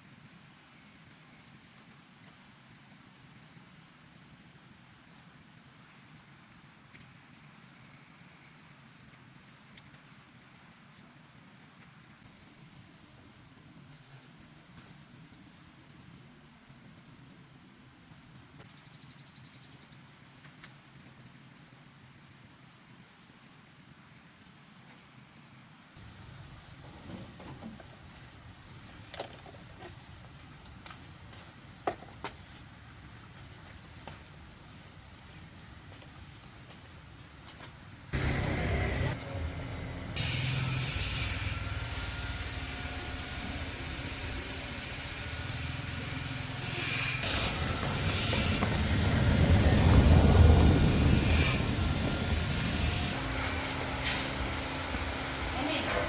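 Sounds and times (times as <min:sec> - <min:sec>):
engine noise with low hum: 0:26.0 - 0:56.0.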